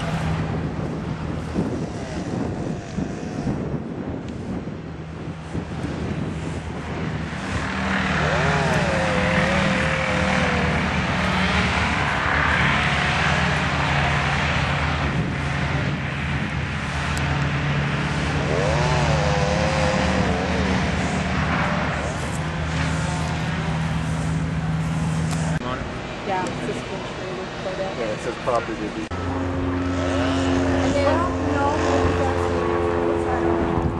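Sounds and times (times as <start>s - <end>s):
car engine hum: 0.0s - 33.9s
road and wind noise: 0.0s - 33.9s.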